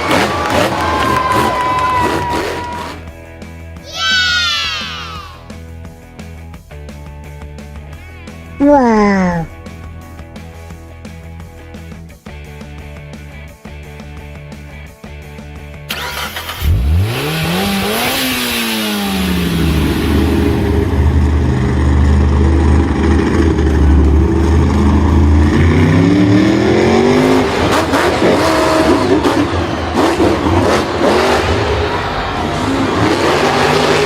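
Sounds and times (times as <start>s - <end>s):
vehicle engine revving: 0.0s - 3.2s, 15.9s - 34.0s
music: 0.2s - 17.5s.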